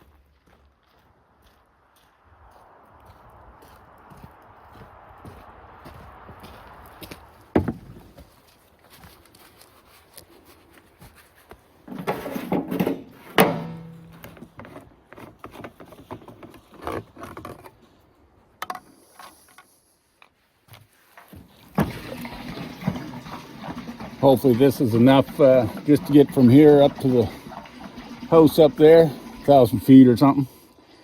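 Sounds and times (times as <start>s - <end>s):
steady rushing noise: 1.7s - 7.6s
knocks and clunks of handling: 7.5s - 8.3s, 11.8s - 17.8s
loud metal clank with ringing hum: 13.4s - 14.2s.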